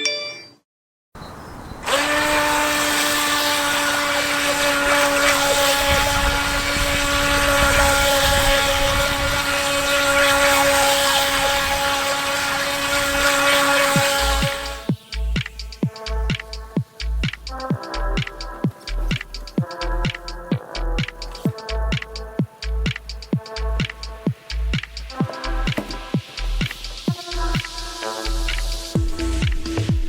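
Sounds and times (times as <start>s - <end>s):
electric motor high whine: 1.8s - 15.8s, 25.2s - 29.0s
rushing hiss: 24.0s - 29.8s.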